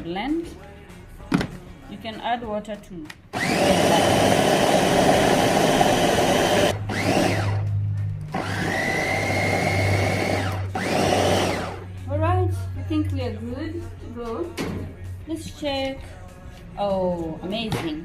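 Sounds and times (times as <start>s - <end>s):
electric blender whining: 3.4s - 11.9s.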